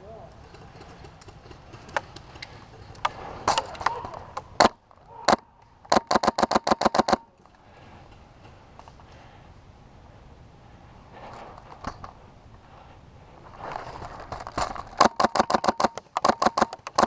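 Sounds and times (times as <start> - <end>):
airsoft guns firing: 3.5 - 7.3, 15.0 - 17.0.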